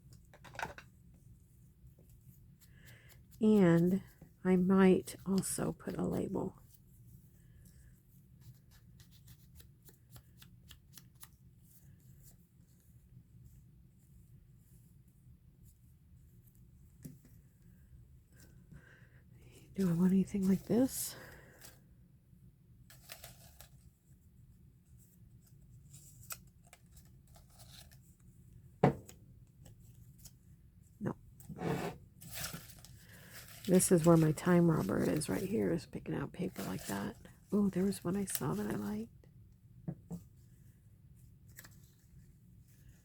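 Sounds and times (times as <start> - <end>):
low room hum: 0.0 - 43.0
paper rustling: 22.9 - 23.9, 25.4 - 28.2, 32.2 - 35.6, 36.4 - 39.0.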